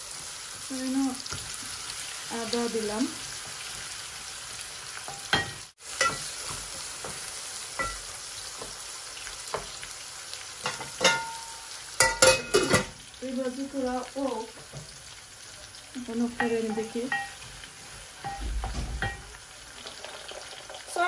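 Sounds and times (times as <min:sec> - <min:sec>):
onions sizzling in oil: 0:00.0 - 0:21.0
utensil tapping metal pot: 0:16.4 - 0:17.4
metal lid clanking on pot: 0:18.2 - 0:19.4.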